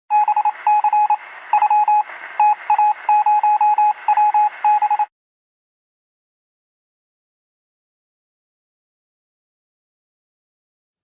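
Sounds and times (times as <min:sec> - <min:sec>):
morse code beeps: 0:00.1 - 0:05.1
radio hiss: 0:00.4 - 0:03.1.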